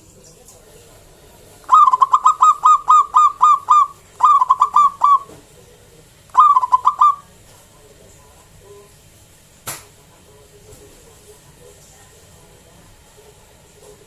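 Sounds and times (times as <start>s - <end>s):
dove cooing: 1.7s - 5.4s, 6.3s - 7.3s.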